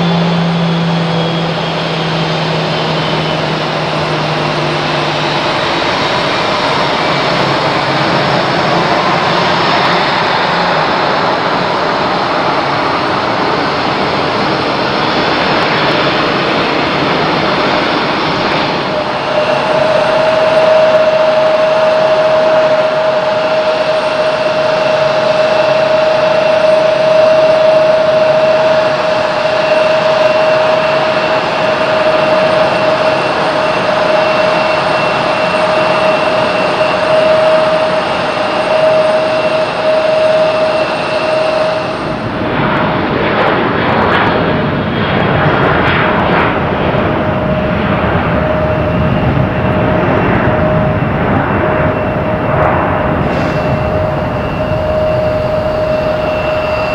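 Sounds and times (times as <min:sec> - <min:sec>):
jet engine high whine: 0:00.0 - 0:56.9
jet engines rushing: 0:00.0 - 0:56.9.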